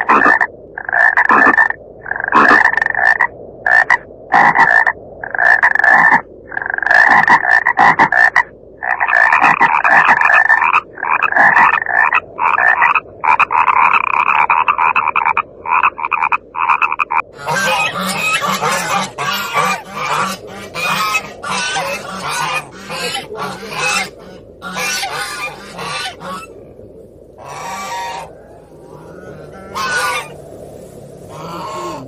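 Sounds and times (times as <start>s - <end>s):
frogs calling in rasping trills: 0.0s - 32.0s
waterfowl honking: 17.4s - 26.6s, 27.4s - 30.4s, 31.2s - 32.0s.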